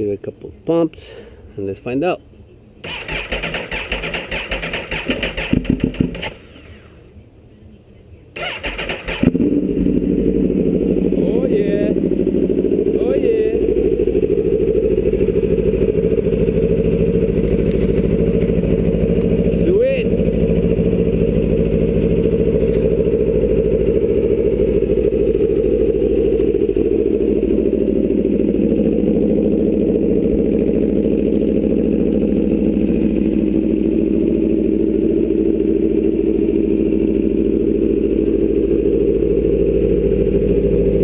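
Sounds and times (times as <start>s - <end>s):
motorcycle engine idling: 2.8s - 7.2s, 8.4s - 41.0s.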